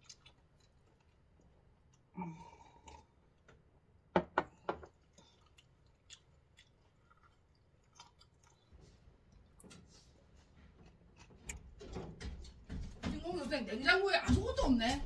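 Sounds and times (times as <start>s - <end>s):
people chewing fruit: 0.0s - 3.6s, 4.5s - 12.6s.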